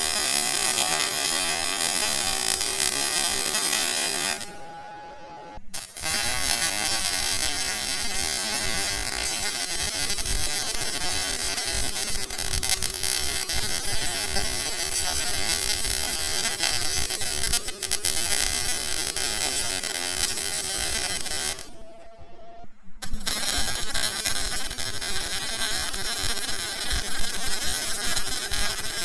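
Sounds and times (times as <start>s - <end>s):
welding arc crackling and buzzing: 0.0s - 22.1s, 23.0s - 29.0s.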